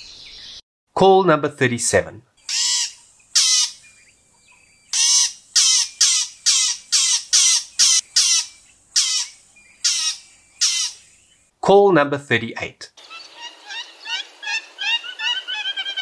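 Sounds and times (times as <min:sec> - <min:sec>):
bird harsh squawks: 0:02.4 - 0:04.1, 0:04.9 - 0:11.2, 0:13.0 - 0:16.0.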